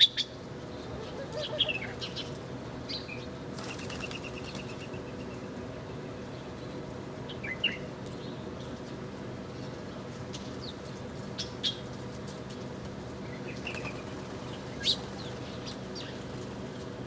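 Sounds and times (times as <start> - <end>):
small birds chirping: 13.3 - 16.5.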